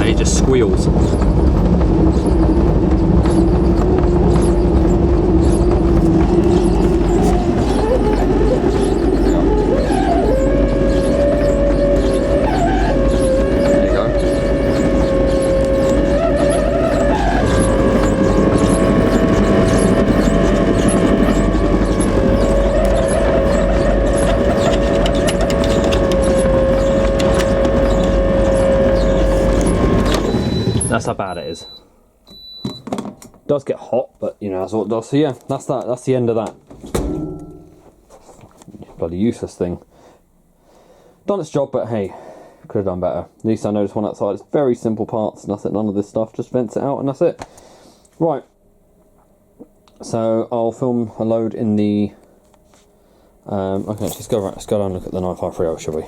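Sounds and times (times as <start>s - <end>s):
tumble dryer drum rumble: 0.0s - 31.8s
pump squealing: 0.0s - 32.8s.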